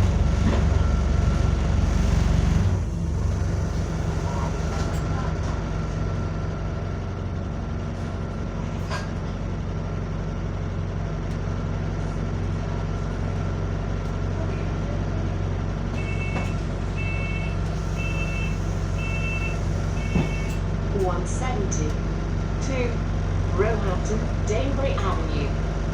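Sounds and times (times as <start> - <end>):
bus diesel engine running: 0.0 - 25.9
electronic beeper: 17.0 - 20.6.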